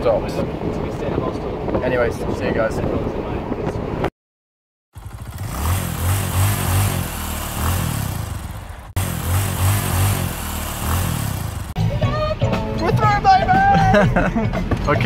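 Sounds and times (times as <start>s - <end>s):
car engine revving and accelerating: 5.2s - 11.8s.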